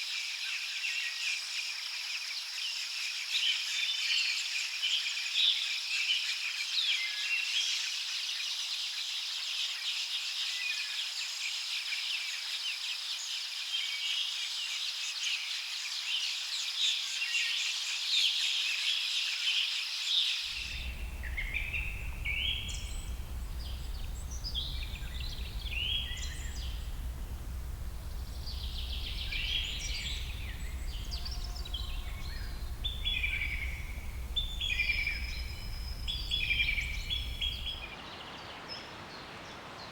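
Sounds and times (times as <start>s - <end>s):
steady low rumble: 20.6s - 37.9s
birds and insects chorus: 20.6s - 38.6s
bird songs: 20.6s - 39.9s.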